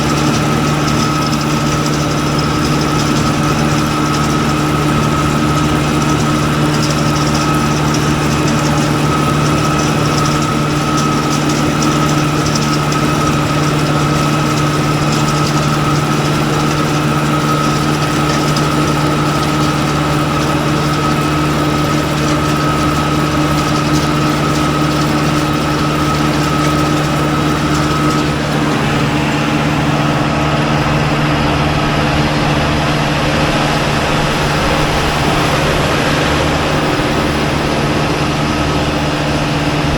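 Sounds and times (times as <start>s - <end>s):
engine running: 0.0s - 39.9s
high whine: 21.8s - 39.9s.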